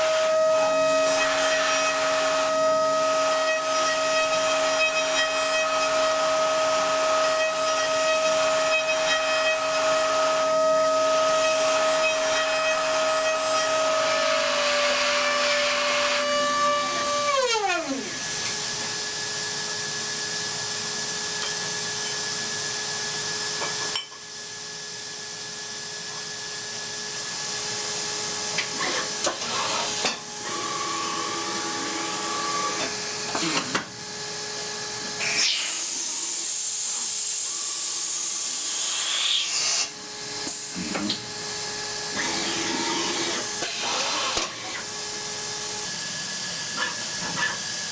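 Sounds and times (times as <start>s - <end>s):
cnc mill spindle whining: 0.0s - 20.4s, 27.4s - 47.9s
hiss of metal cutting: 28.6s - 30.2s, 35.1s - 47.9s.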